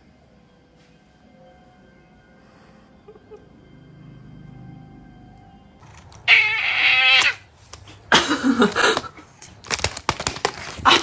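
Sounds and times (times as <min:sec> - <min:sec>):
cat yowling: 0:06.1 - 0:07.5.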